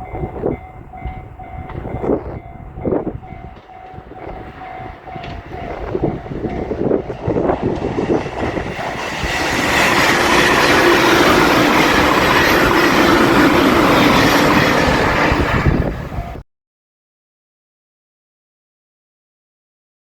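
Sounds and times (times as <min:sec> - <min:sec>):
train rushing past: 0:00.0 - 0:16.4
train wheels clacking over rail joints: 0:03.2 - 0:15.3.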